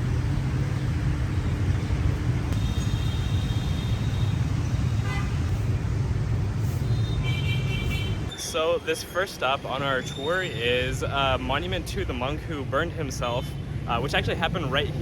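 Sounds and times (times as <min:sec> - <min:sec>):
rumble of engines and road noise: 0:00.0 - 0:15.0
vehicle horn: 0:02.6 - 0:05.5.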